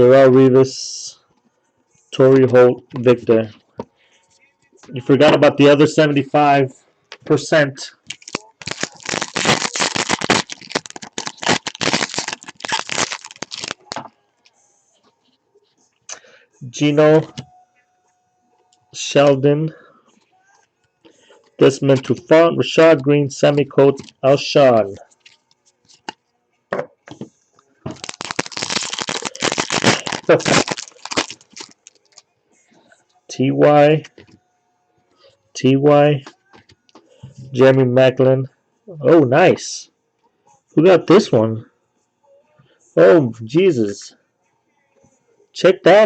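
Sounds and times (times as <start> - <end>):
trading cards rustling: 8.1 - 14.1, 27.9 - 32.2.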